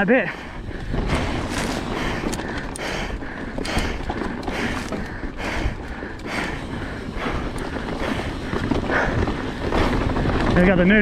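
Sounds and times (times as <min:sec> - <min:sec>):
bike knocking and rattling: 0:00.4 - 0:11.0
tyres rolling over dirt: 0:00.6 - 0:11.0.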